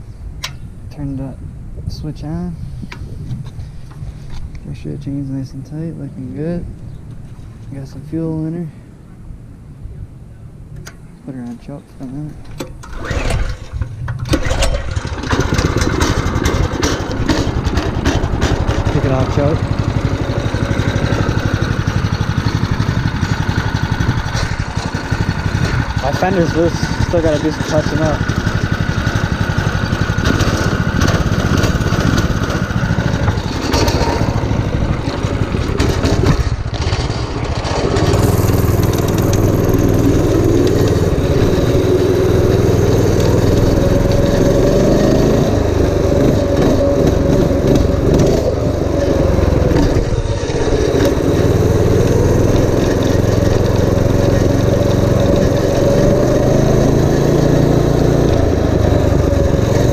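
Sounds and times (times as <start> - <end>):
minibike engine revving: 12.8 - 59.9.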